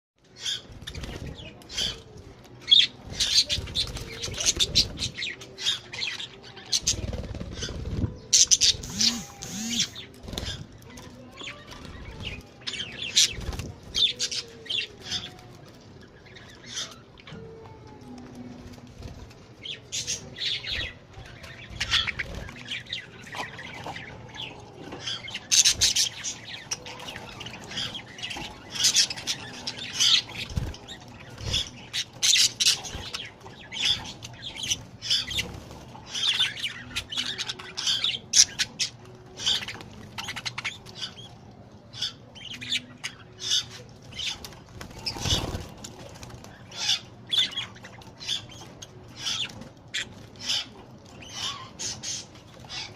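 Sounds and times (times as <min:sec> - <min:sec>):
budgerigars chirping and squawking: 0:00.4 - 0:10.7, 0:19.6 - 0:52.9
wing fluttering: 0:06.8 - 0:10.7.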